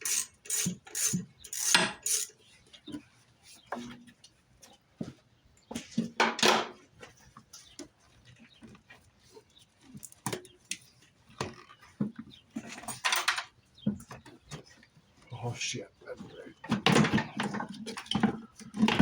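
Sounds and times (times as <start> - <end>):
tools clinking and knocking: 0.0 - 2.4, 12.6 - 13.5.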